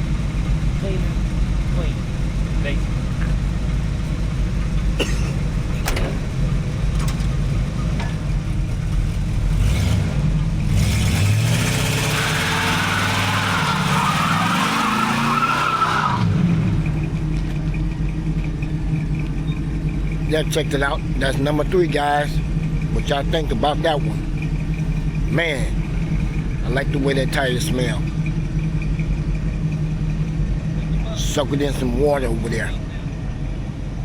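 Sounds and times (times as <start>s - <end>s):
car engine idling and revving: 0.0s - 34.0s
tyres squealing: 12.1s - 16.3s.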